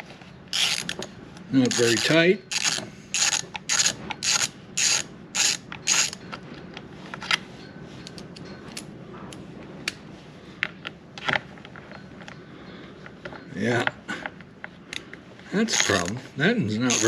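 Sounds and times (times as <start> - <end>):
socket ratchet rasping: 0.5 - 1.0, 1.6 - 6.2, 15.7 - 16.2.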